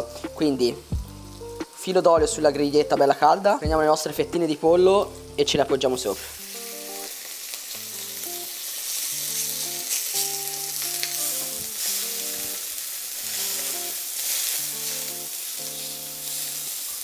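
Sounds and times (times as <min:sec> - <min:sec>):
chicken sizzling on grill pan: 0:00.0 - 0:02.6, 0:06.0 - 0:17.0
background music: 0:00.0 - 0:17.0.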